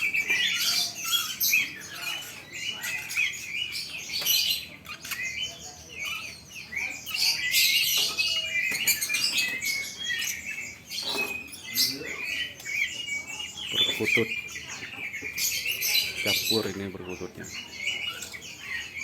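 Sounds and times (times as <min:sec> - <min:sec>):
songbirds chirping and trilling: 0:00.0 - 0:19.0.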